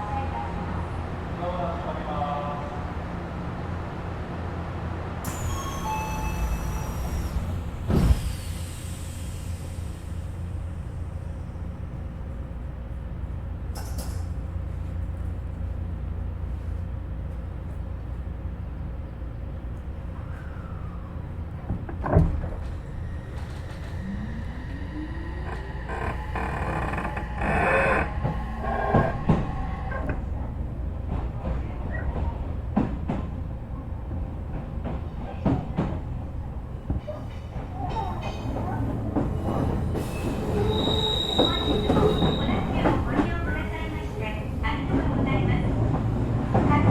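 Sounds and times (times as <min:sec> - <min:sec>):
train running rumble: 0:00.0 - 0:46.9
wheels squealing on rails: 0:05.2 - 0:10.8, 0:22.4 - 0:30.8, 0:37.0 - 0:44.6.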